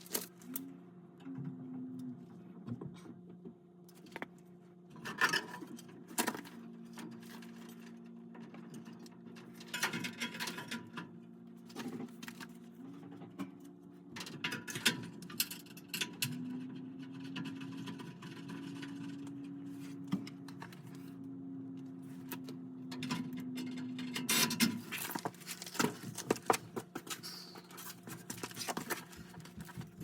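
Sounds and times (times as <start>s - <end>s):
metal parts clinking and rattling: 0.0s - 0.4s, 23.0s - 29.8s
low motor hum: 0.0s - 30.0s.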